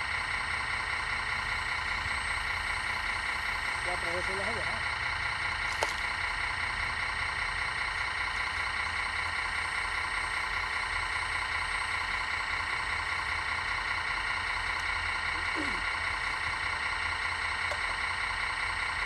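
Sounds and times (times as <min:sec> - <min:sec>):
high motor whine: 0:00.0 - 0:19.0
low hum: 0:00.0 - 0:19.0.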